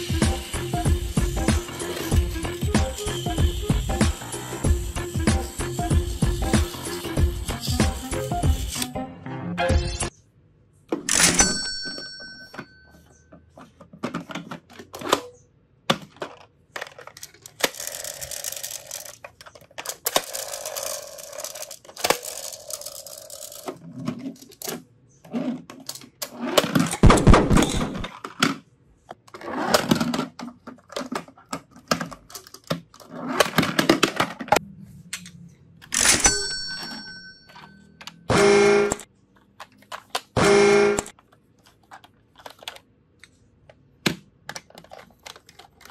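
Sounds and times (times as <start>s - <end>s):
plastic toy vehicles rolling on wood: 0.4s - 4.6s, 15.9s - 27.0s, 28.0s - 34.6s, 44.5s - 45.9s.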